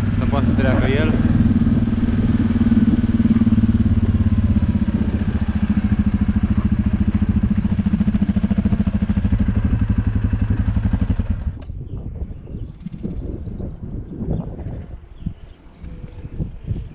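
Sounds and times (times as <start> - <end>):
tractor diesel engine running: 0.0 - 11.7.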